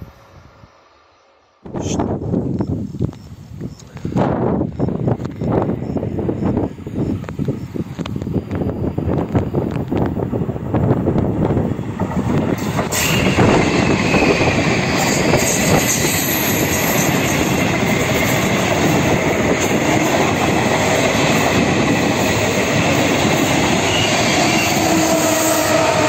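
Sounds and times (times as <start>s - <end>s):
locomotive humming tone: 0.0s - 26.0s
train wheels rumbling on rail: 1.6s - 26.0s.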